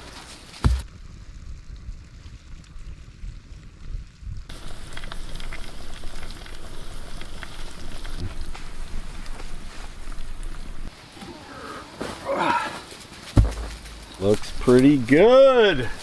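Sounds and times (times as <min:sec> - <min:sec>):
fire crackling: 0:00.0 - 0:16.0
meat sizzling: 0:04.5 - 0:11.0.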